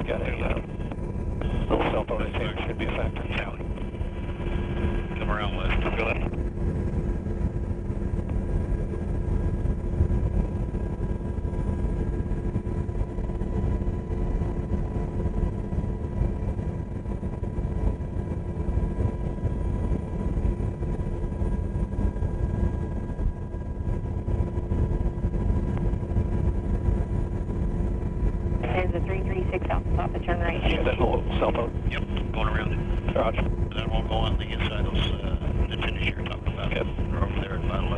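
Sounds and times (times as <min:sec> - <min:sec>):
constant whine: 0:00.0 - 0:37.9
helicopter engines and rotors droning: 0:00.0 - 0:37.9.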